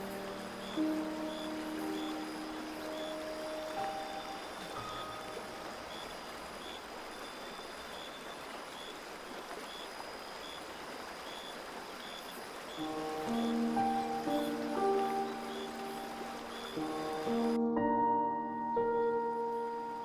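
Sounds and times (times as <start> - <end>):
music: 0.0 - 6.1, 12.8 - 20.0.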